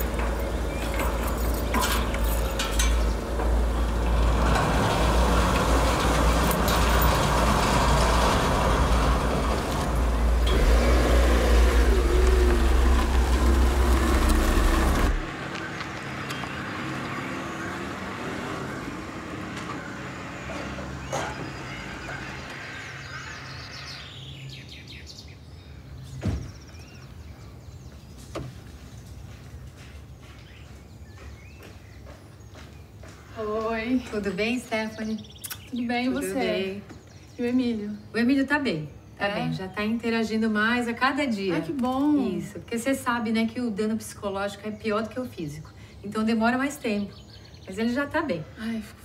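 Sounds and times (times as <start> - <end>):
car engine rumbling: 0.0 - 24.1
bird chirps: 20.4 - 36.2.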